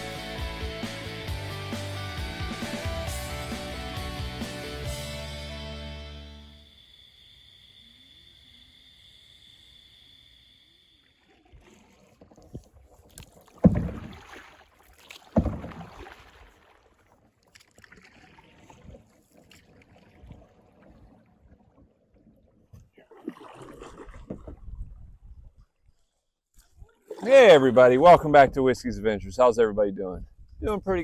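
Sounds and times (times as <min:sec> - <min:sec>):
faint steady high tone: 0:06.3 - 0:11.2
paddle strokes and splashes: 0:11.0 - 0:27.6
paddle knocks: 0:12.2 - 0:16.5.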